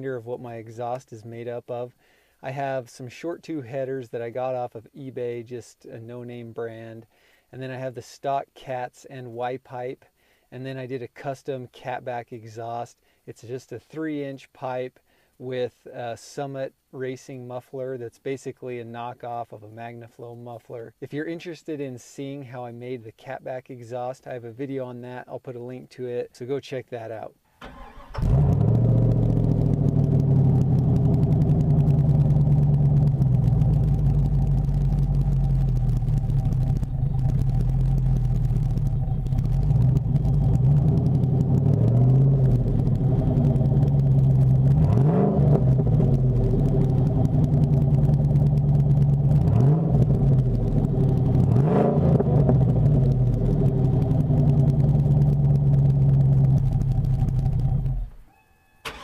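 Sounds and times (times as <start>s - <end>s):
engine throttle blips: 27.6s - 59.0s
truck engine idling: 31.1s - 44.7s.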